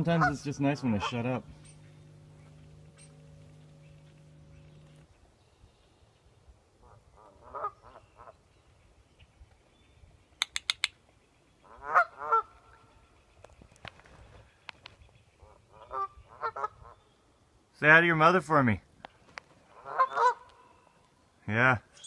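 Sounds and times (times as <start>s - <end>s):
geese honking: 0.0s - 5.1s, 6.8s - 8.4s, 11.6s - 12.8s, 19.7s - 20.7s
sharp clicks: 10.4s - 11.0s.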